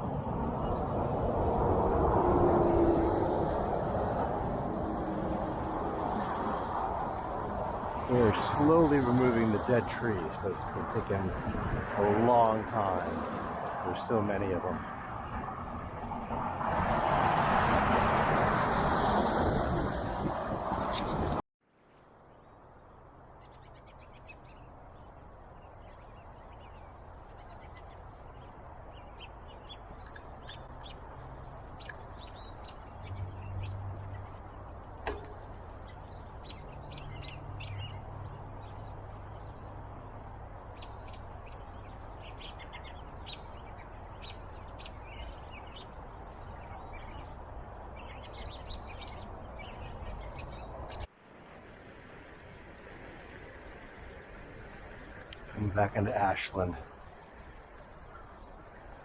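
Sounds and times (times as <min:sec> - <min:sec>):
birds chirping: 0:06.0 - 0:16.4, 0:22.1 - 0:51.1, 0:54.7 - 0:59.0.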